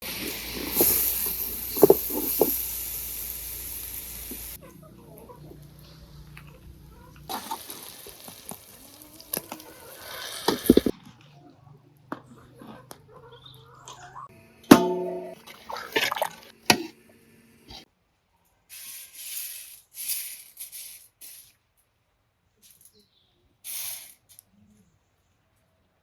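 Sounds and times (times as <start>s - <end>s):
food sizzling in pan: 0.0s - 4.6s, 7.3s - 10.9s
utensils clicking and knocking: 10.3s - 10.9s.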